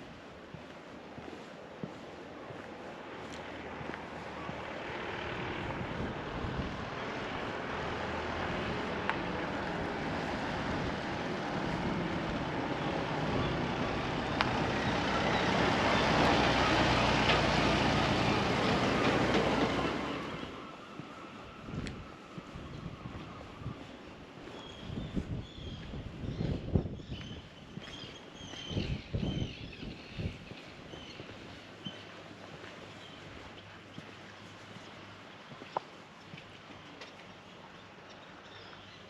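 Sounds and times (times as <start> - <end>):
vehicle engine approaching: 2.6 - 24.0.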